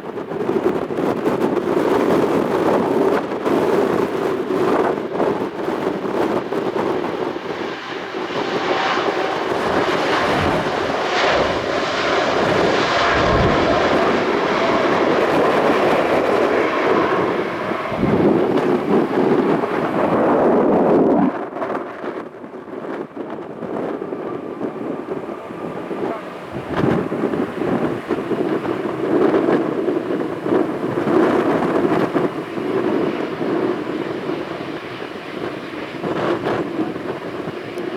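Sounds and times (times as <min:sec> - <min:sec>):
jet engines roaring: 0:00.0 - 0:37.9
wind buffeting microphone: 0:00.0 - 0:37.9
fan whine: 0:05.9 - 0:33.0.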